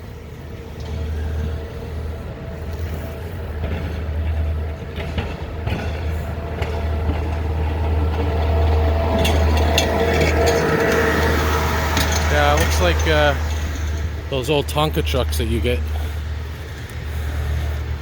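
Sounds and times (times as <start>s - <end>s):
snowplow engine drone: 0.0s - 18.0s.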